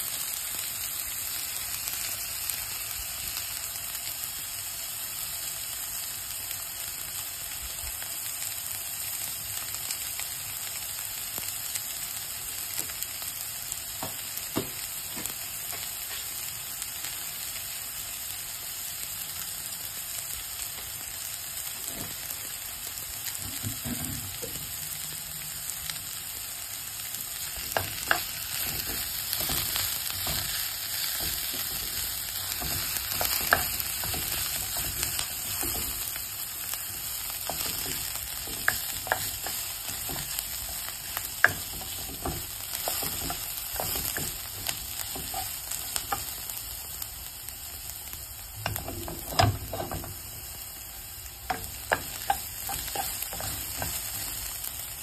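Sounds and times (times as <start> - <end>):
onions sizzling in oil: 0.0 - 55.0
spatula scraping and tapping pan: 27.4 - 46.4, 48.6 - 50.6, 51.3 - 54.5.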